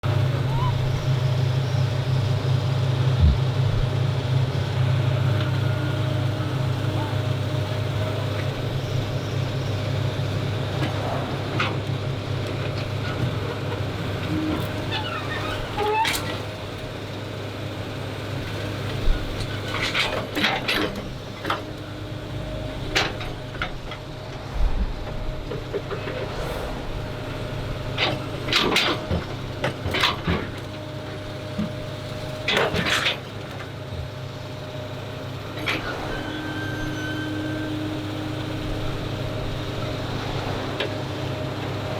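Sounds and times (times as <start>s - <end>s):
excavator diesel engine running: 0.0s - 41.9s
excavator bucket clanking: 3.1s - 4.0s.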